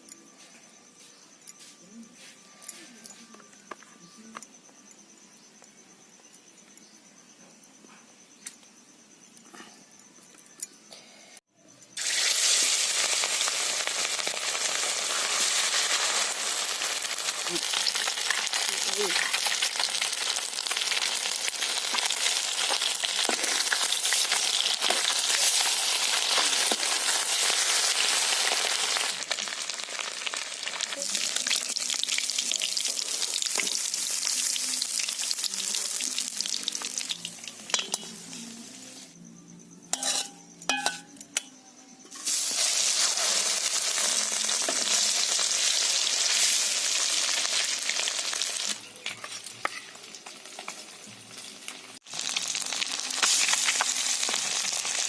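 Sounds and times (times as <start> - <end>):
spices sizzling in oil: 11.9 - 39.0, 39.9 - 41.0, 42.1 - 55.0.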